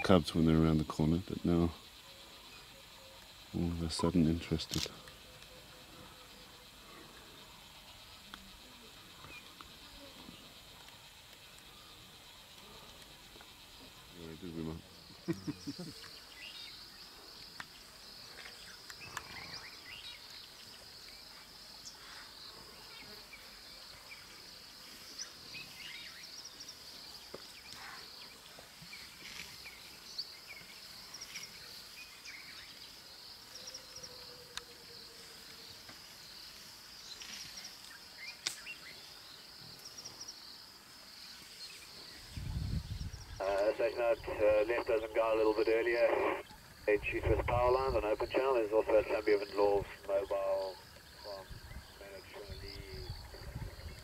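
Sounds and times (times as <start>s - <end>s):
high-pitched insect chorus: 0.0s - 54.0s
faint clicks: 17.4s - 19.4s.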